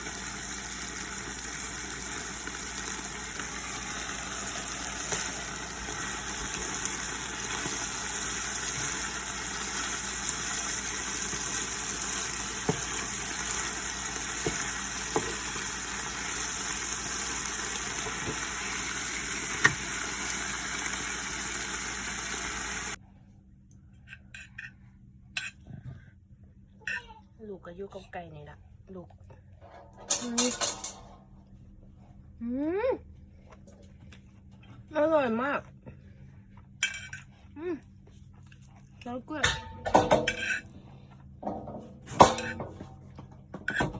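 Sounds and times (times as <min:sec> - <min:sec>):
food sizzling in a pan: 0:00.0 - 0:23.0.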